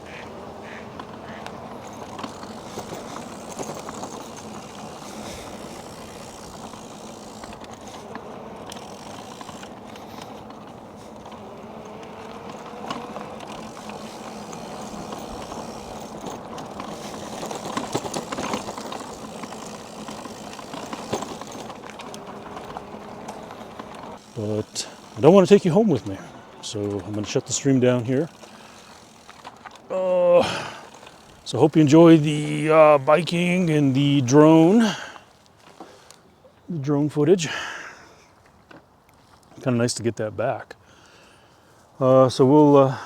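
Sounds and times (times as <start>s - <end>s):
tyre and wind noise: 0.0s - 24.4s
bike rattles and clicks: 0.0s - 40.0s.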